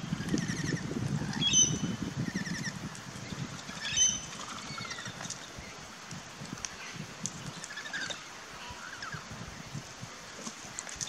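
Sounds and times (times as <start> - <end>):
birds chirping and whistling: 0.2 - 5.1.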